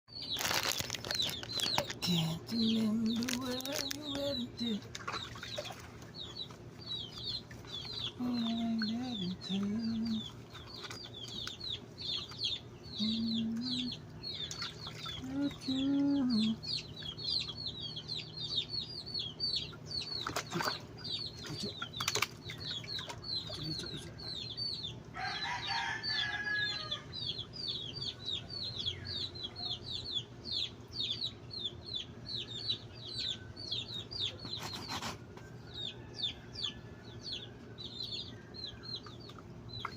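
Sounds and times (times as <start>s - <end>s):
low hum: 0.1s - 25.2s
small animal peeping: 0.1s - 39.9s.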